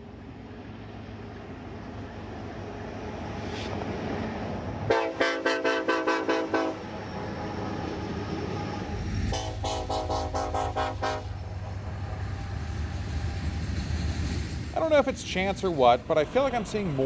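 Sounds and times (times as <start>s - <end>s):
rumble of approaching train: 0.0s - 17.0s
locomotive air horn chord: 4.9s - 6.9s, 9.0s - 11.9s.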